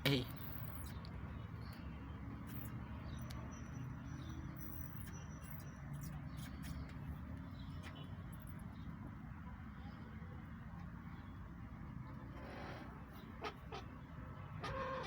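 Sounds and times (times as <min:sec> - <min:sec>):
poultry chirps and squeaks: 0:00.4 - 0:08.6, 0:12.4 - 0:15.0.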